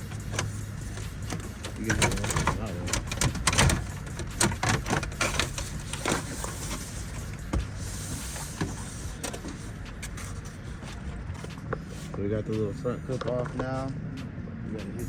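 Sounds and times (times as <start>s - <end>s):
panel rustling: 0.0s - 11.6s.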